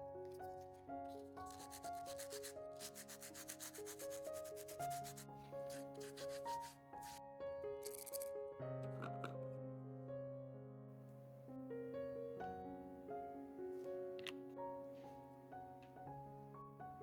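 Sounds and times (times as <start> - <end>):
soft piano music: 0.0 - 17.0
sandpaper rubbing: 1.1 - 7.2.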